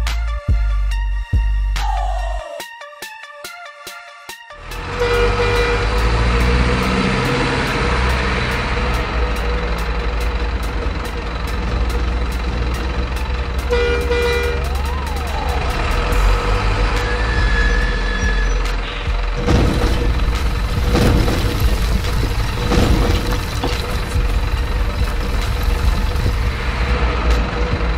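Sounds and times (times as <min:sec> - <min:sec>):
truck engine rumble: 0:04.6 - 0:27.9
horn-like tone: 0:04.8 - 0:06.0, 0:13.7 - 0:14.8.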